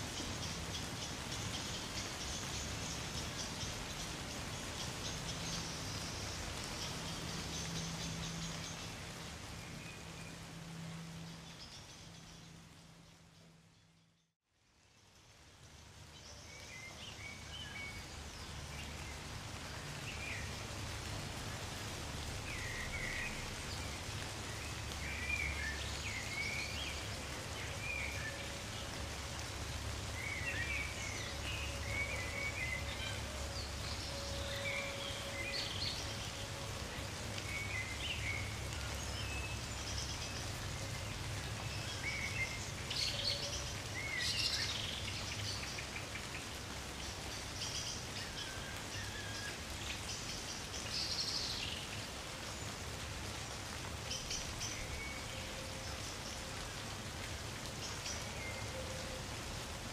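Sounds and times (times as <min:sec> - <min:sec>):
small birds chirping: 0:00.0 - 0:14.3
gentle rain falling: 0:00.0 - 0:59.9.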